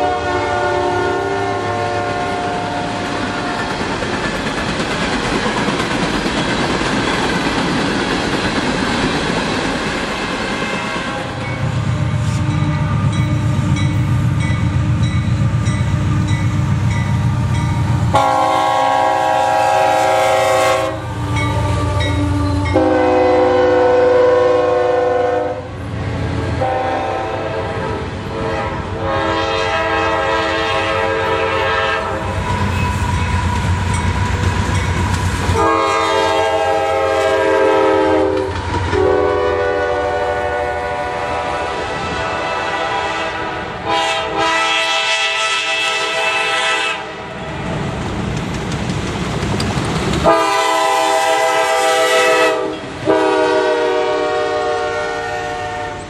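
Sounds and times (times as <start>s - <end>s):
train horn blasts: 0.0s - 3.6s, 10.6s - 15.2s, 18.1s - 34.0s, 35.5s - 47.4s, 50.2s - 56.0s
freight train wheels clattering: 2.8s - 23.0s, 30.6s - 39.6s, 47.7s - 51.9s.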